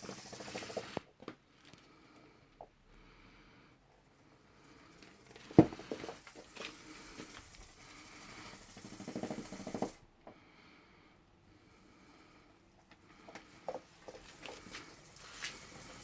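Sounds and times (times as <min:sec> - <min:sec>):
rapid rattling ticks: 0:00.0 - 0:01.0, 0:04.7 - 0:10.0
cat toy ball rolling and knocking: 0:08.4 - 0:10.0.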